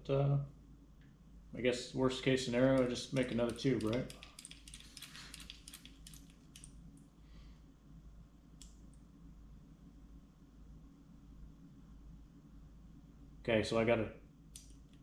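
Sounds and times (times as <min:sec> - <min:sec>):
steady low hum: 0:00.0 - 0:15.0
tool clicks and handling: 0:02.7 - 0:06.7.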